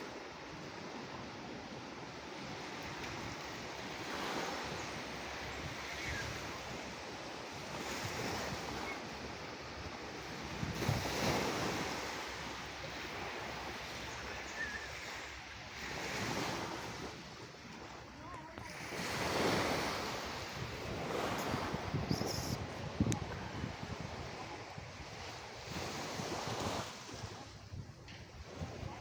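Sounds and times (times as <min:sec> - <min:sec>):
waves breaking on shore: 0:00.0 - 0:29.0.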